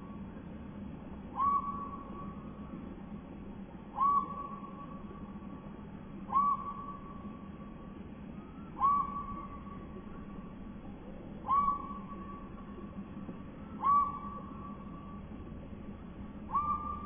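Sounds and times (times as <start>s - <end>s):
low background hum: 0.0s - 17.0s
slowed-down whistled bird call: 1.3s - 2.6s, 3.9s - 5.6s, 6.3s - 7.5s, 8.4s - 10.5s, 11.4s - 15.4s, 16.4s - 17.0s.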